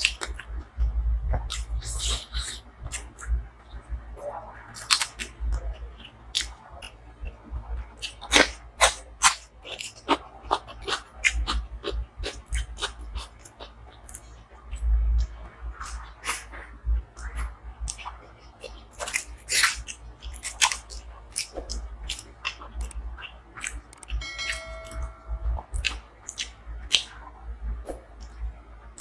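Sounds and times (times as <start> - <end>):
wet chewing and smacking: 1.4 - 3.3, 4.8 - 7.4, 8.0 - 24.2, 25.8 - 27.2.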